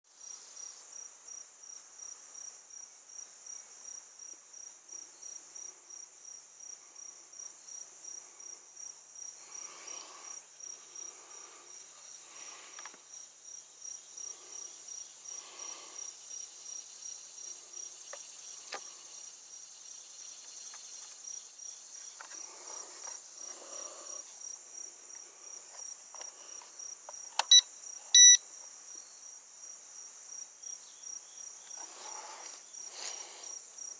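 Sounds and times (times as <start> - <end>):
insects chirping: 0.2 - 33.9
short electronic beeps: 27.4 - 27.6, 28.2 - 28.4.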